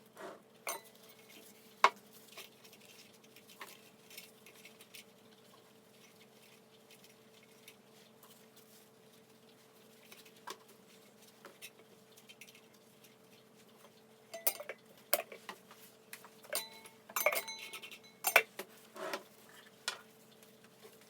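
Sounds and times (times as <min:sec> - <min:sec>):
small hard objects clinking: 0:14.4 - 0:15.4, 0:16.4 - 0:18.6.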